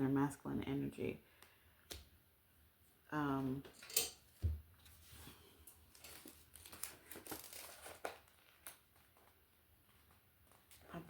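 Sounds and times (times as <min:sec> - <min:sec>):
book pages rustling: 0:04.8 - 0:11.0.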